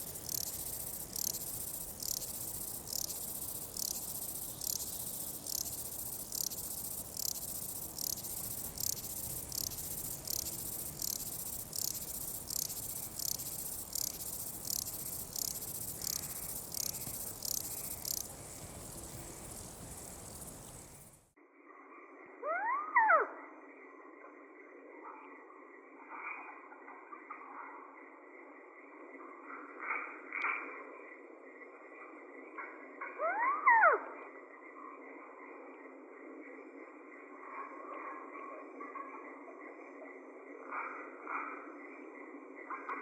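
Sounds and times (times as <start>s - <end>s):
crickets chirping: 0.0s - 21.3s.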